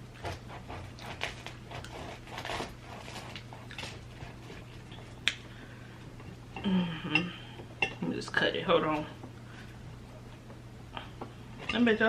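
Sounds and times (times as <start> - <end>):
knife sawing through bread roll: 0.0 - 4.7.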